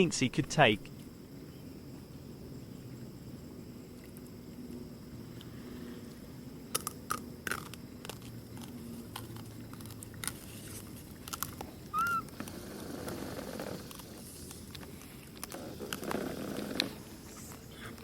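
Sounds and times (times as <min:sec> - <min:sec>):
monkeys crunching and chewing food: 0:03.9 - 0:18.0.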